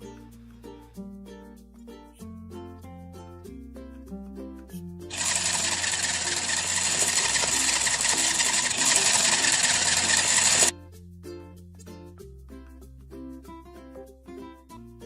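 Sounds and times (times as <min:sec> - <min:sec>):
soft children's music: 0:00.0 - 0:05.1, 0:10.7 - 0:15.0
toy kitchen appliance whirring: 0:05.1 - 0:10.7.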